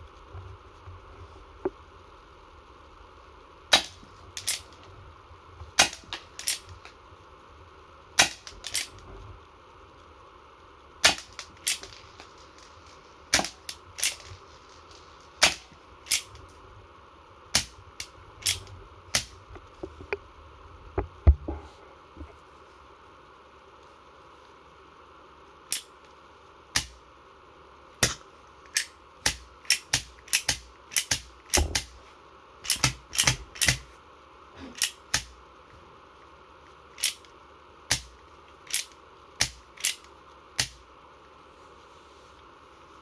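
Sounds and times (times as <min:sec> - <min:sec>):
replica revolver shots cracking: 0:03.7 - 0:04.6, 0:05.8 - 0:06.6, 0:08.2 - 0:08.9, 0:11.0 - 0:12.0, 0:13.3 - 0:14.3, 0:15.4 - 0:16.3, 0:28.0 - 0:28.2.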